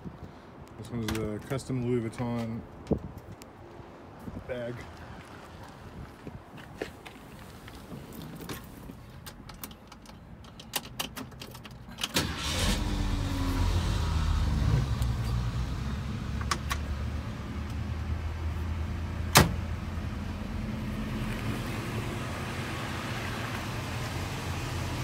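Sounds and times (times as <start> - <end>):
car engine starting and idling: 10.8 - 25.0.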